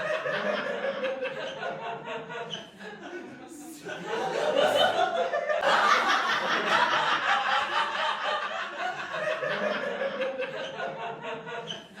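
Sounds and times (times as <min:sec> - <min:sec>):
audience laughing: 0:00.0 - 0:12.0.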